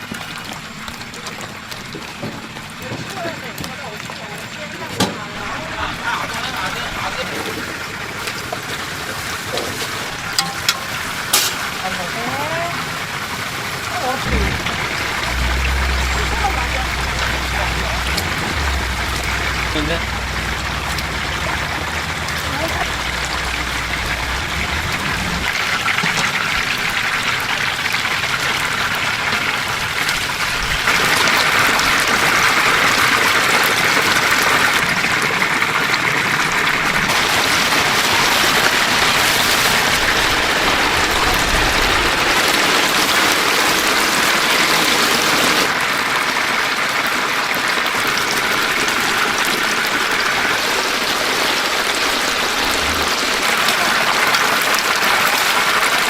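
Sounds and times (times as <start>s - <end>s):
chicken sizzling in hot oil: 0.0s - 14.2s, 35.7s - 41.0s.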